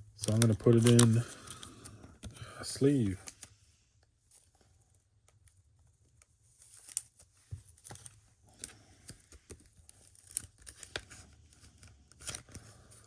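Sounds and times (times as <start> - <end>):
plastic sleeve crinkling: 0.2 - 2.0, 9.6 - 13.0.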